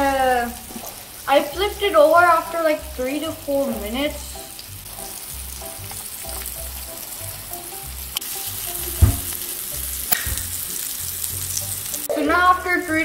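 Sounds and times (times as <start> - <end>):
fish frying in butter: 0.0 - 13.0
soft background music with beat: 4.4 - 13.0
sharp knock: 9.0 - 9.3.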